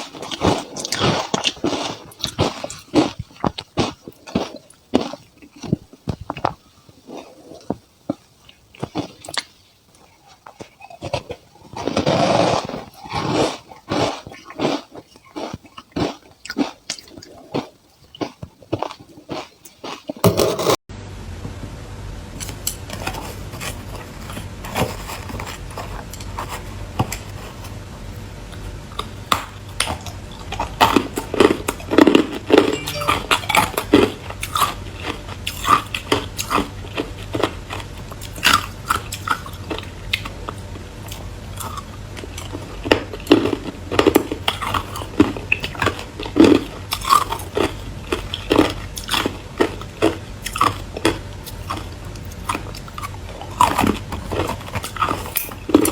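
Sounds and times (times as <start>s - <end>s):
person chewing hard ice: 0.0s - 20.7s, 22.4s - 27.8s, 28.5s - 55.9s
steady low hum: 20.2s - 55.9s.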